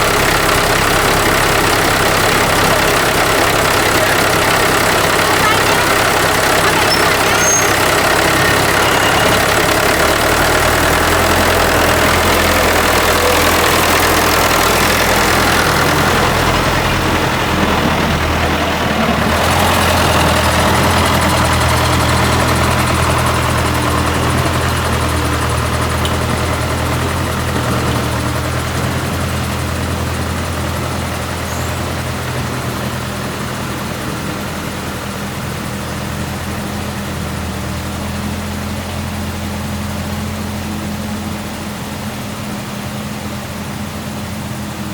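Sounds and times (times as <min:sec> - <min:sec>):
threshing machine motor humming: 0:00.0 - 0:35.2.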